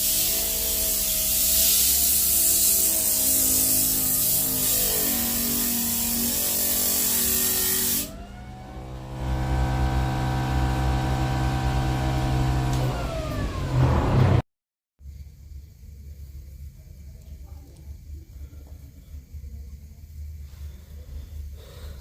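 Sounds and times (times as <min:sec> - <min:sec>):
power tool rasping on wood: 0:00.0 - 0:08.2, 0:08.8 - 0:13.9
electric motor whining: 0:00.0 - 0:14.4.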